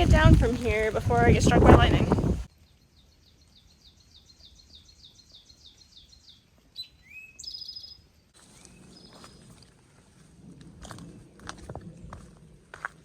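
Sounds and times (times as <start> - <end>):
songbirds chirping: 0.0 - 9.8
bird song with whistle and trill: 2.8 - 9.4.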